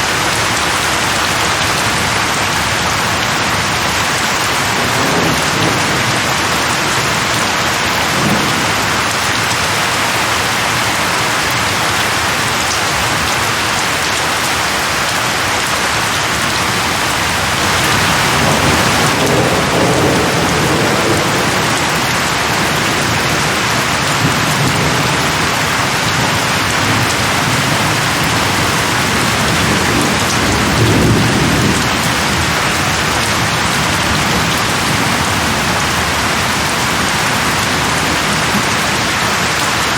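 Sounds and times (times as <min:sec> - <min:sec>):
heavy rain: 0:00.0 - 0:39.9
distant thunder rumbling: 0:16.4 - 0:39.0.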